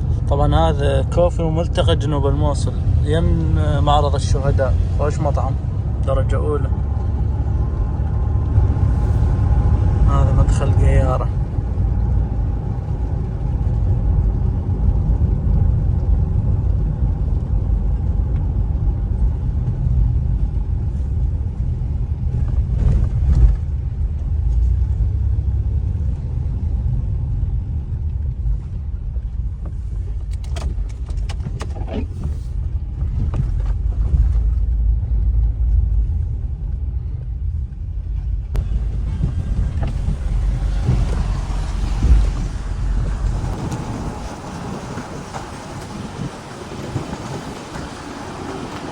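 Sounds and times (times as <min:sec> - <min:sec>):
road and engine rumble: 0:00.0 - 0:48.9.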